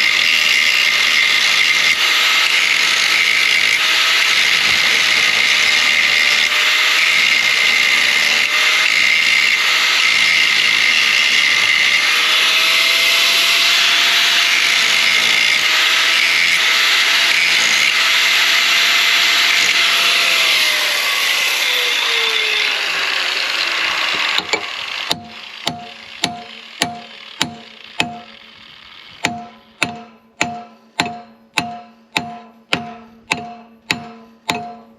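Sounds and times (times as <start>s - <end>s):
power tool running: 0.0s - 30.4s
hammer striking metal: 24.3s - 28.5s, 29.2s - 34.9s.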